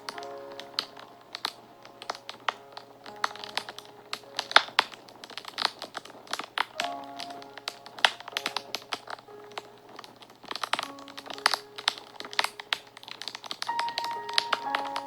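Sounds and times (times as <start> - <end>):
fire crackling and snapping: 0.0 - 15.0
soft background music: 0.0 - 15.0.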